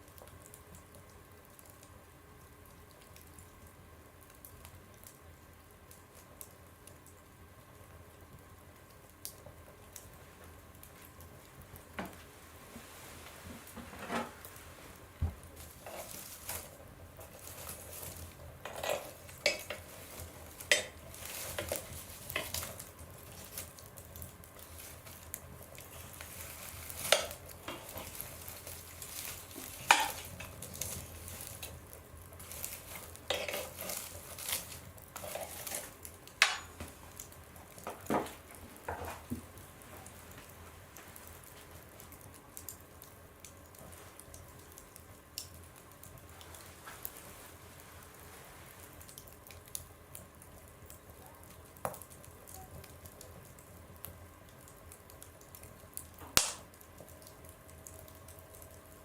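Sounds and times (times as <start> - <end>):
faint steady hiss: 0.0 - 59.0
wood fire crackling in a stove: 0.0 - 59.0
sharp pops: 56.4 - 56.7.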